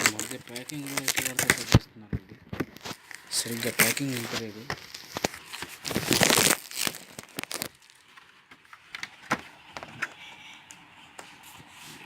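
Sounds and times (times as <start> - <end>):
packaging crackling: 0.0 - 1.9, 2.5 - 8.1.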